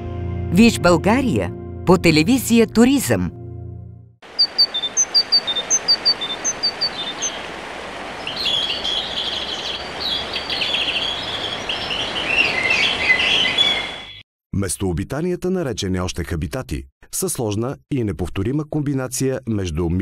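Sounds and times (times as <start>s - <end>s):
bird chirping phrase: 4.3s - 7.5s, 8.2s - 14.2s
chorus of bird chirps: 4.3s - 7.5s, 8.2s - 14.2s.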